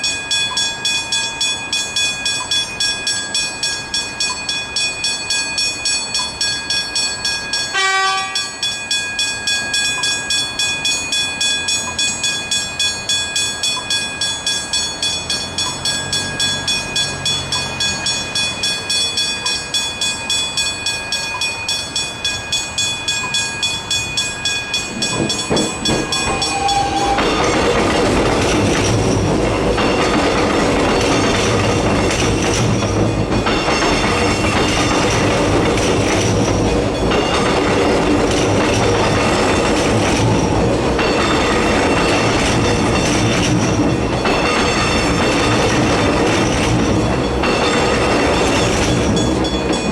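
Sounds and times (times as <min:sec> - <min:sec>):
level crossing warning bells: 0:00.0 - 0:49.9
train passing over crossing: 0:00.0 - 0:49.9
train horn blast: 0:07.7 - 0:08.5, 0:26.1 - 0:27.8.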